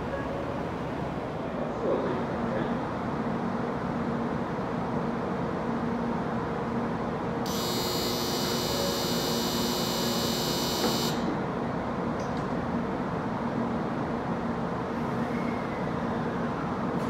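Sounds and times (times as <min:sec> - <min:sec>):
train humming at platform: 0:00.0 - 0:17.0
electronic departure buzzer: 0:07.5 - 0:11.3.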